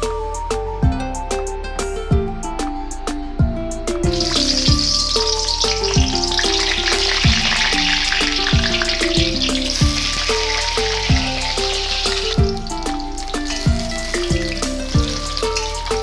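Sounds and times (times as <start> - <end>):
background music with steady beat: 0.0 - 16.0
hot oil sizzling: 4.1 - 16.0.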